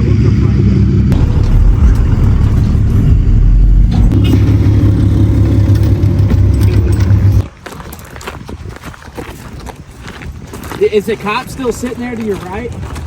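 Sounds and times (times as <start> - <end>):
pickup truck engine rumble: 0.0 - 7.4.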